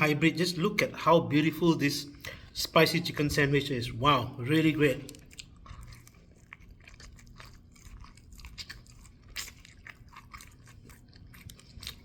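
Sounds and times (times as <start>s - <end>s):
mouth chewing crunchy food: 4.5s - 12.0s.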